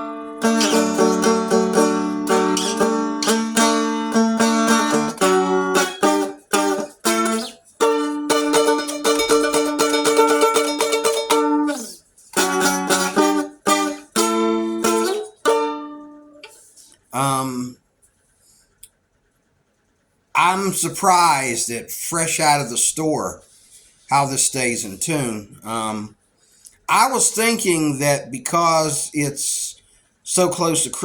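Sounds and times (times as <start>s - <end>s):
strummed string chords with drone: 0.0s - 16.6s.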